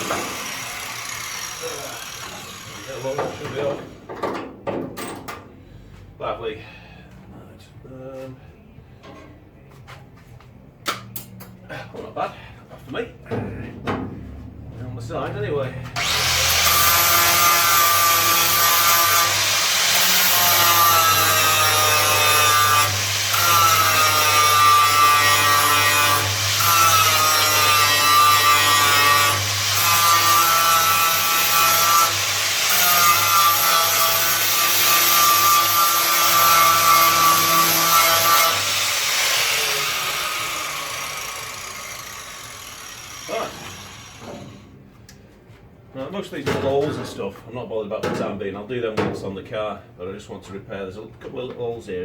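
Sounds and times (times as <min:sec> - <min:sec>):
angle grinder grinding steel: 0:00.0 - 0:04.0, 0:16.0 - 0:44.6.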